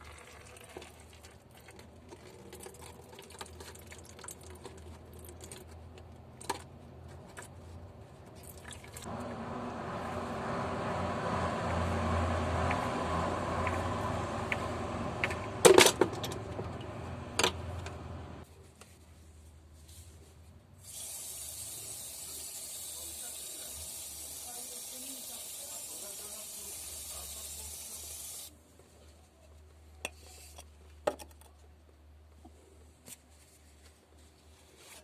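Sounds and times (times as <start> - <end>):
rustling and scraping: 28.8 - 35.0.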